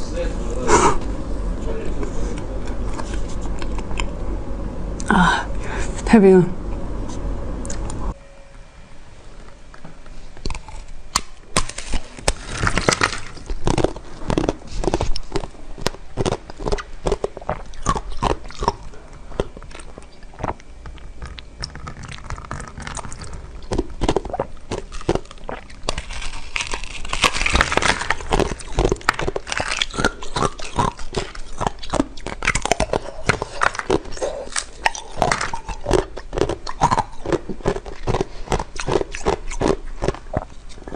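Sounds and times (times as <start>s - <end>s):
chewing frozen dessert crackles: 2.3s - 4.3s, 10.4s - 40.9s.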